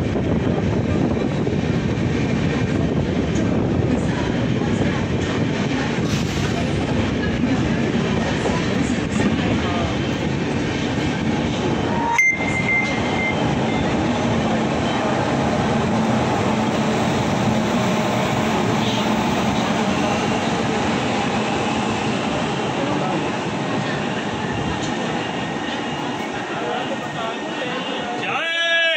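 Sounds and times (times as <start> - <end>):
train wheels rumbling on rails: 0.0 - 28.2
brief high tone: 11.8 - 13.9.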